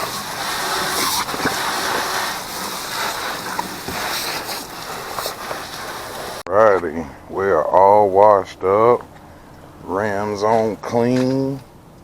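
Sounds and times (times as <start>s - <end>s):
water spray rinsing a truck: 0.0s - 6.4s.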